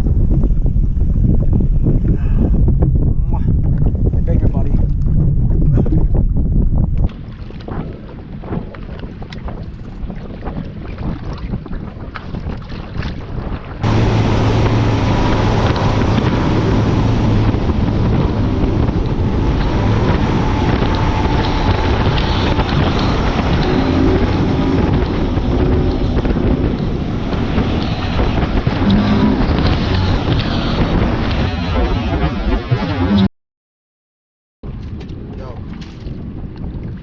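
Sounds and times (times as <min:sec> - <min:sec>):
wind buffeting microphone: 0:00.0 - 0:33.3, 0:34.6 - 0:37.0
water rushing: 0:07.1 - 0:33.2
boat engine hum: 0:13.6 - 0:33.3.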